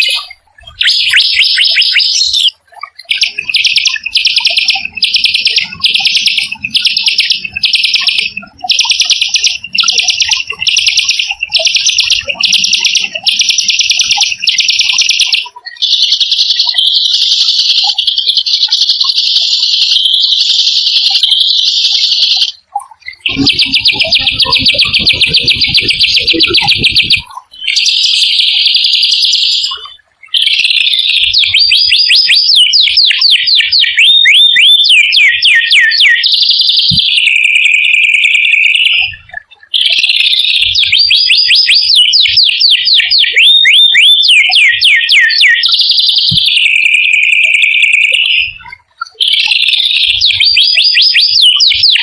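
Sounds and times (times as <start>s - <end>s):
songbird trilling: 0.0s - 39.1s.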